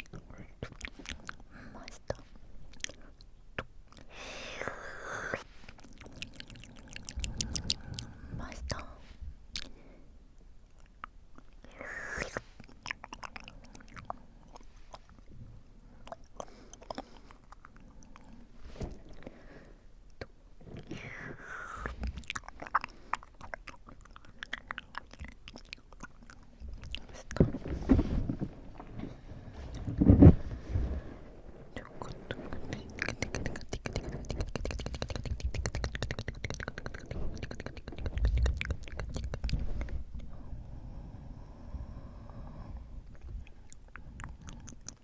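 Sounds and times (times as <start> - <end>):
wet mouth clicks and lip smacks: 21.8 - 27.4, 32.7 - 40.0, 43.7 - 45.0.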